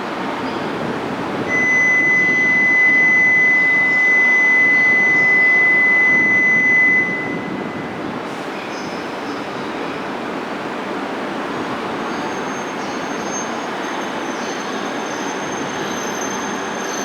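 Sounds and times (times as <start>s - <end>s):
railway station background noise: 0.0s - 17.0s
high-pitched electronic tone: 1.5s - 8.0s.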